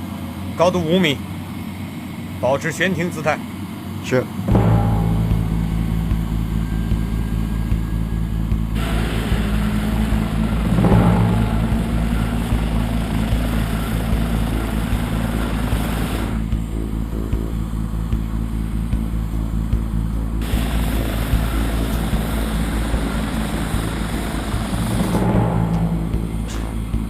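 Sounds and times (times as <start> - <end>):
helicopter engine and rotor: 6.6 - 27.0.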